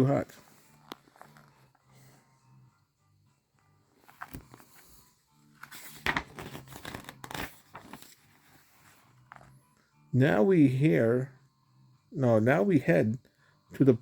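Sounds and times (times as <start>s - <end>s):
book page rustling: 0.4s - 1.9s, 3.9s - 9.6s.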